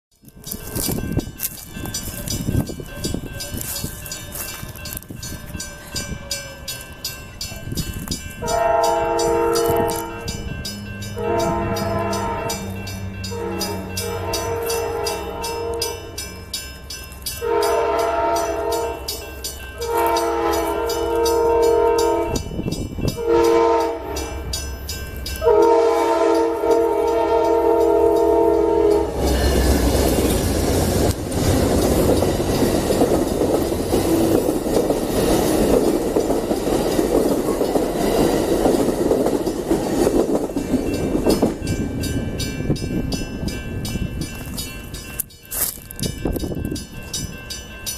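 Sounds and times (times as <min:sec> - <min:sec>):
train rumbling past: 0:00.2 - 0:47.9
train air horn blasts: 0:08.4 - 0:10.4, 0:11.2 - 0:12.7, 0:13.3 - 0:16.2, 0:17.4 - 0:19.1, 0:19.8 - 0:22.4, 0:23.2 - 0:24.4, 0:25.4 - 0:29.9.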